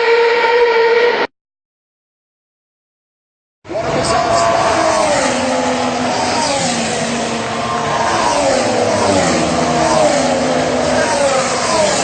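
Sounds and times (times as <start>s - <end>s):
engine-like sound falling in pitch: 3.7s - 12.0s.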